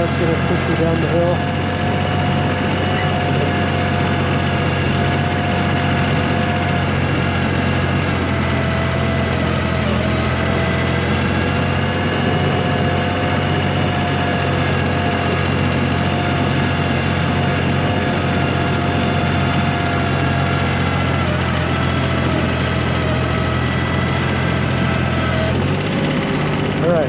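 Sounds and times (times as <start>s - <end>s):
diesel tractor engine running: 0.0s - 27.0s
steady whine: 0.0s - 27.0s.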